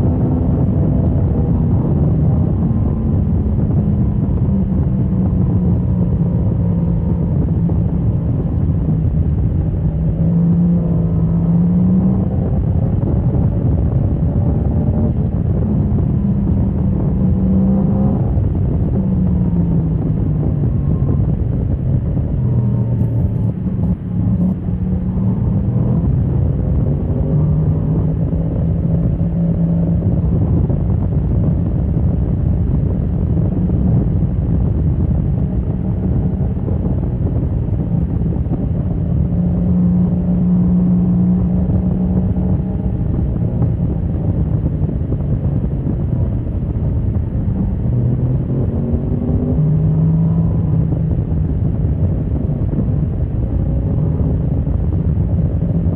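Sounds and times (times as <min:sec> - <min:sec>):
motorcycle engine running hard: 0:00.0 - 0:55.9.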